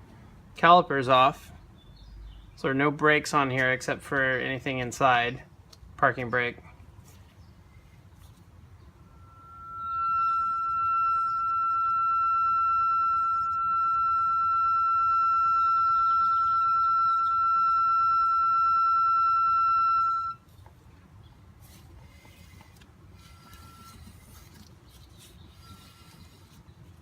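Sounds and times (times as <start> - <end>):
brake rotor squealing: 21.6 - 27.0.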